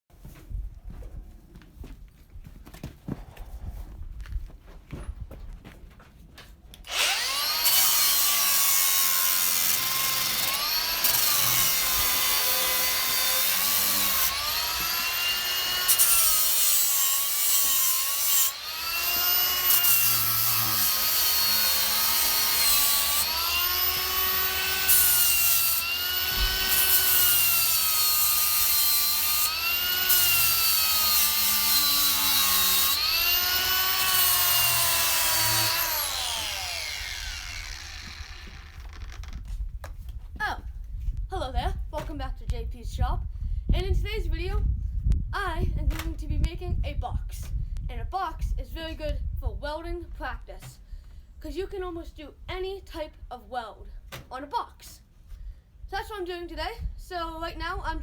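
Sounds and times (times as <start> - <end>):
angle grinder grinding steel: 6.8 - 39.4.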